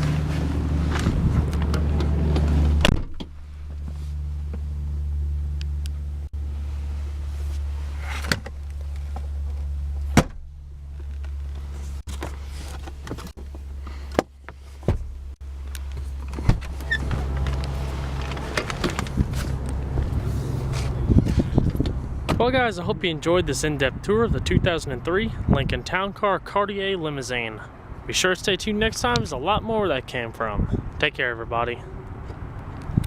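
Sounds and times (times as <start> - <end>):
seat mechanism clicks and knocks: 0.9 - 3.9, 8.1 - 20.0, 21.3 - 22.4.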